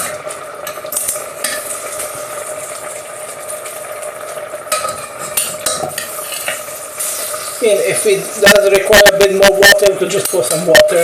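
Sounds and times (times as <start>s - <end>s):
food sizzling in a pan: 0.0s - 11.0s
spoon scraping a pan: 4.7s - 7.6s.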